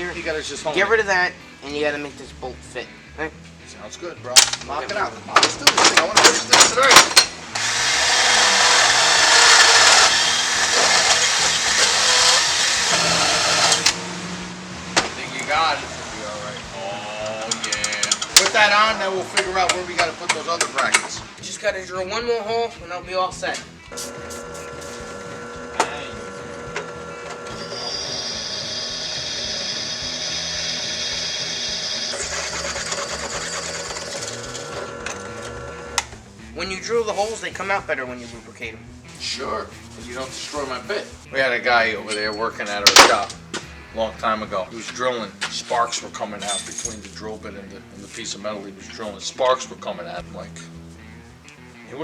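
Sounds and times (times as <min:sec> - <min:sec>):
power tool grinding metal: 0:05.6 - 0:21.3, 0:23.9 - 0:36.4
drill bit cutting steel: 0:07.0 - 0:14.1, 0:23.9 - 0:36.2
electric drill motor whine: 0:07.5 - 0:14.6, 0:23.9 - 0:36.2.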